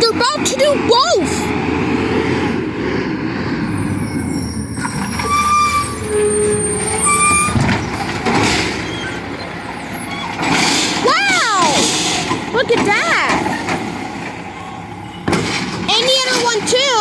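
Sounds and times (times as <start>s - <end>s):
garbage truck engine running: 0.0s - 17.0s
high squealing tones: 3.6s - 11.8s.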